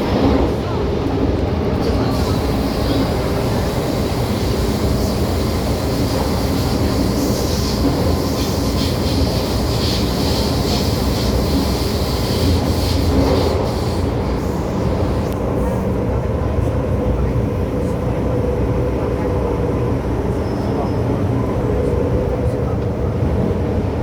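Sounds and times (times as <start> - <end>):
train wheels rumbling on rail: 0.0 - 24.0
wheel hiss: 2.0 - 15.2.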